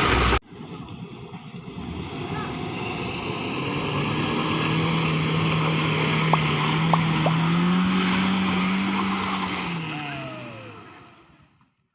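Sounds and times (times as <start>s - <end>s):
truck engine running under load: 0.0s - 11.6s.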